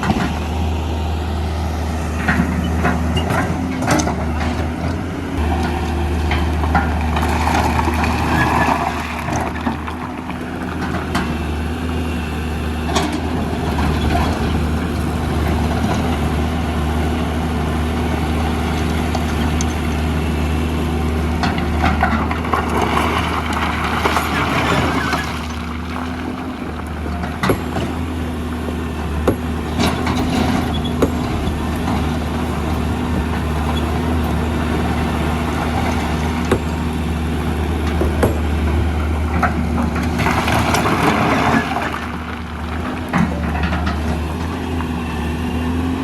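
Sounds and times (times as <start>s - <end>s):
excavator and truck diesel engines: 0.0s - 46.0s
scattered knocks: 37.9s - 38.5s.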